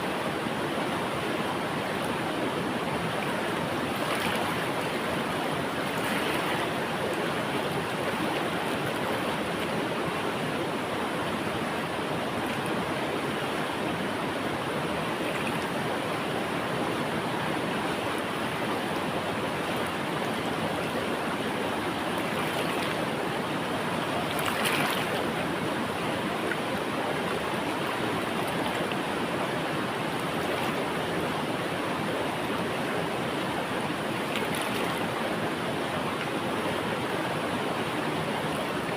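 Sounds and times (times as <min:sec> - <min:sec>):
river water flowing: 0:00.0 - 0:38.9
water splash: 0:24.3 - 0:25.2, 0:34.3 - 0:35.0.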